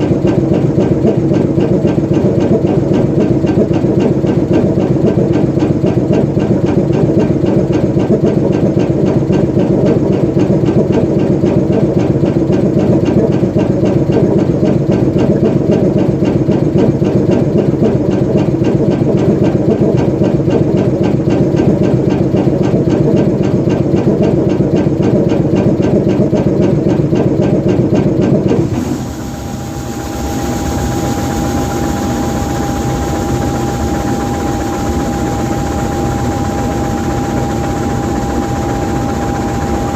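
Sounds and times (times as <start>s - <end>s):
diesel locomotive engine idling: 0.0s - 39.9s
steady high whine: 28.6s - 39.9s.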